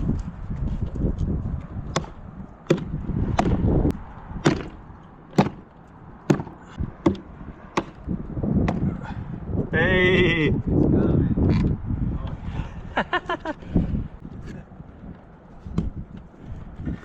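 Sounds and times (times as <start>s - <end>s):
sharp knocks: 1.9s - 3.6s, 4.4s - 8.0s.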